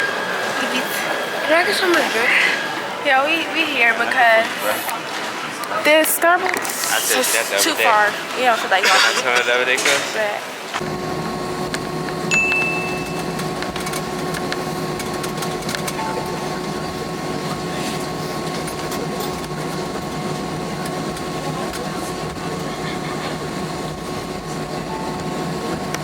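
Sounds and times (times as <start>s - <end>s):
steady mechanical drone: 10.5s - 26.0s
brief high beep: 12.3s - 13.4s.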